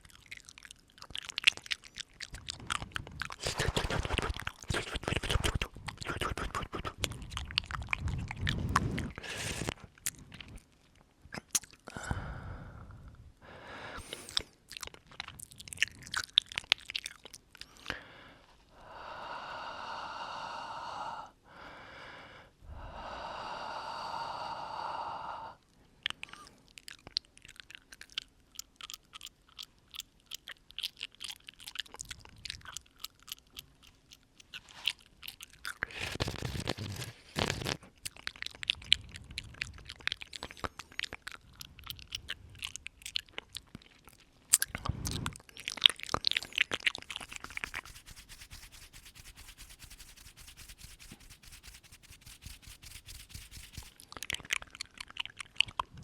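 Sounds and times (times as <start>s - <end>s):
wet mouth clicks and smacks: 0.0s - 12.0s, 14.0s - 18.0s, 26.0s - 56.0s.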